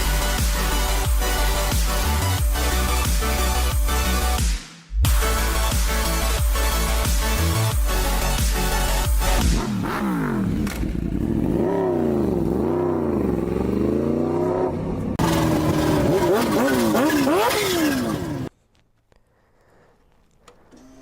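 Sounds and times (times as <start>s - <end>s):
motorcycle engine revving: 8.1s - 18.5s.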